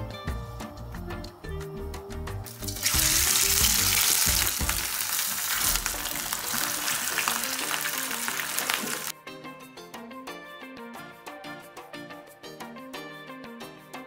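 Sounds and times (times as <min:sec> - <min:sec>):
meat sizzling in hot oil: 0:02.5 - 0:09.1.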